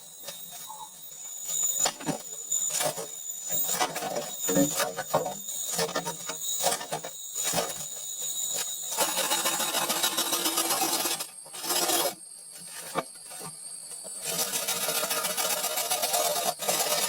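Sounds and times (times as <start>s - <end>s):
hand tool scraping wood: 9.0s - 13.5s, 14.2s - 17.0s.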